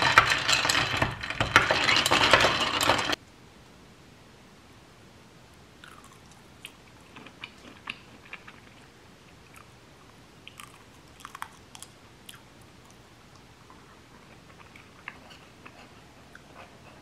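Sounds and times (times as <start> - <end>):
person chewing food: 5.8 - 9.8, 10.4 - 17.0.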